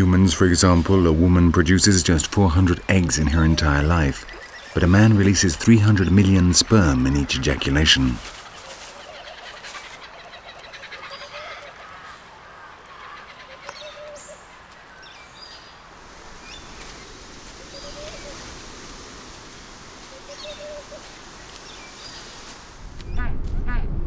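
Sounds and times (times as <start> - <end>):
birds low calls: 0.0 - 23.4
outdoor ambient hiss: 0.0 - 24.0
faint high bird chirps: 16.4 - 18.5.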